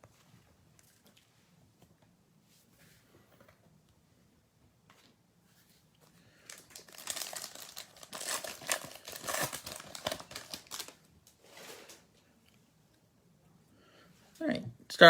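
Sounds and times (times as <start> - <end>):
wrapper tearing and crinkling: 6.4 - 12.0.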